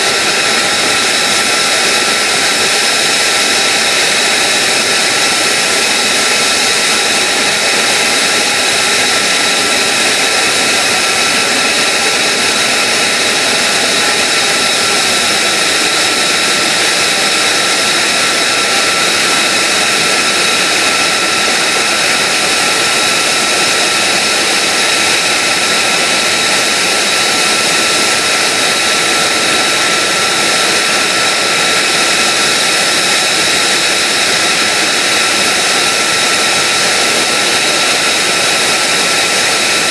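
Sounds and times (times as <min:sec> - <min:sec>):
high-pitched engine whines: 0:00.0 - 0:39.9
jet engine rushing hiss: 0:00.0 - 0:39.9.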